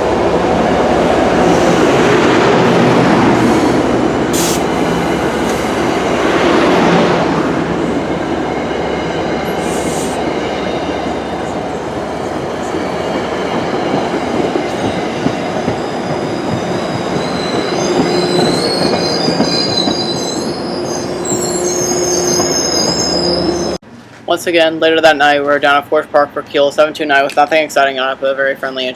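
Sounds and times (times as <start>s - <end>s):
train wheels rumbling on rails: 0.0s - 23.8s
high-pitched wheel squeal: 15.9s - 23.8s.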